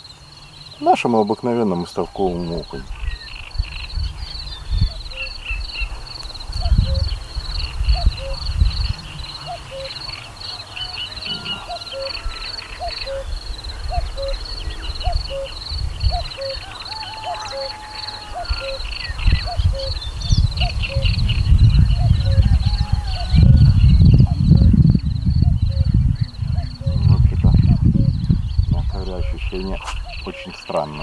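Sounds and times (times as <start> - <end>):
birds twittering and chirping: 0.0 - 31.0
short low bird call: 10.8 - 12.5
low rumbles: 20.4 - 30.2.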